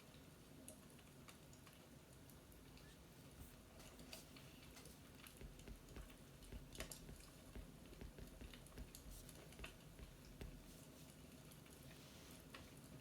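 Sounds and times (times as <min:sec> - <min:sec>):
faint fireplace crackling: 0:00.0 - 0:13.0.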